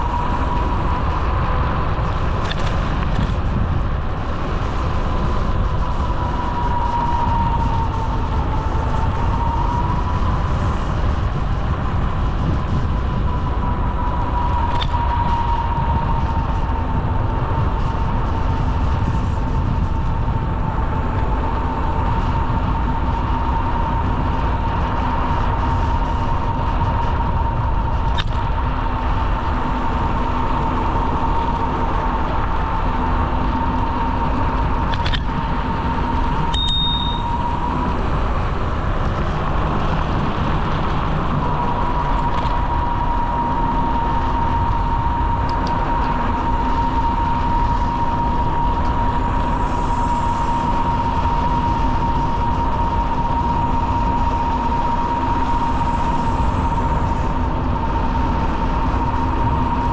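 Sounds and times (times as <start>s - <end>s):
high wavering whine: 0.0s - 59.9s
wind rumble on microphone: 0.0s - 59.9s.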